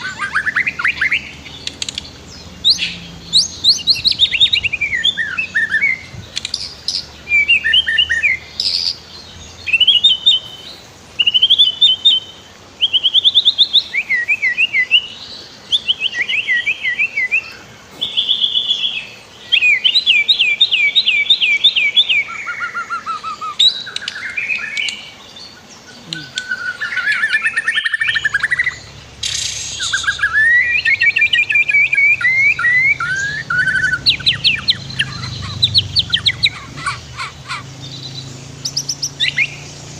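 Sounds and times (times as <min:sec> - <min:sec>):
bird singing whistles and trills: 0:00.0 - 0:39.9
stream water flowing: 0:23.7 - 0:39.9.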